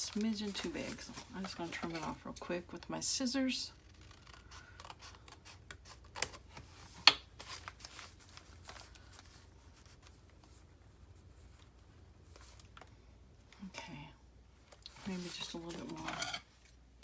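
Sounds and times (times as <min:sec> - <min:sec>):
paper rustling: 0:00.0 - 0:02.4, 0:05.9 - 0:10.7.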